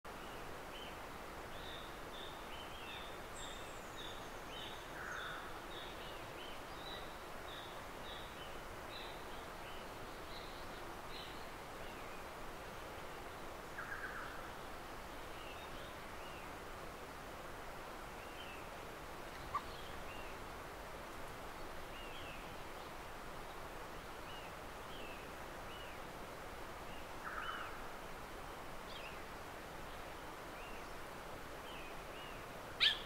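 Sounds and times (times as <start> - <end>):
forest hiss: 0.1 - 33.0
bird chirping: 31.7 - 33.0.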